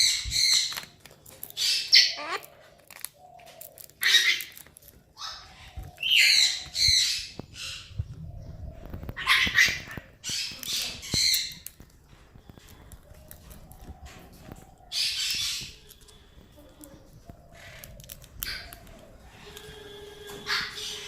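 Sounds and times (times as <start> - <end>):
parrot squawking: 1.6 - 2.6, 4.0 - 4.6, 9.2 - 11.6, 20.4 - 21.0.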